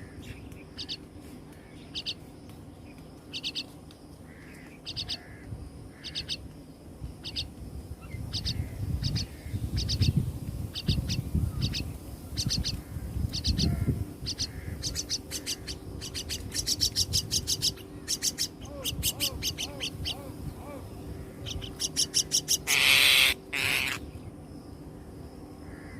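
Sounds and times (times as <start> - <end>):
bird chicks chirping: 2.9 - 3.7, 8.1 - 24.1.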